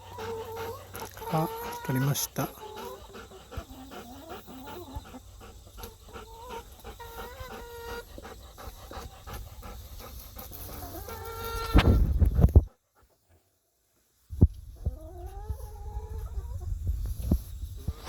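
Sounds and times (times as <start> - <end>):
dog panting: 0.0 - 11.5.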